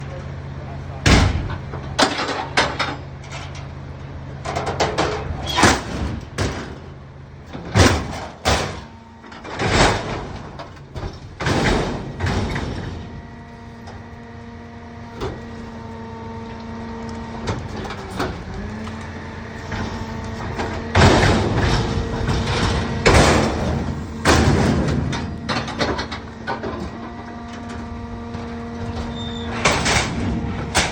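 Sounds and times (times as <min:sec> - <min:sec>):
garbage truck engine: 0:00.0 - 0:30.9
load crunching: 0:04.4 - 0:30.9
hydraulic whine: 0:04.6 - 0:30.9
bins banging into hopper: 0:07.6 - 0:13.3, 0:17.4 - 0:30.9.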